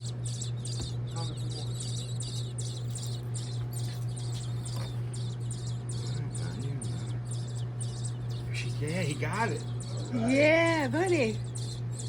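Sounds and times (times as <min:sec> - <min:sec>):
nestlings chirping: 0:00.0 - 0:12.0
steady low hum: 0:00.0 - 0:12.0.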